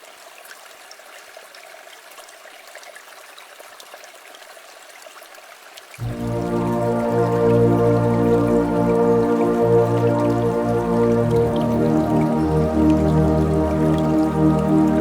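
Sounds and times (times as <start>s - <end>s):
music: 6.0s - 15.0s.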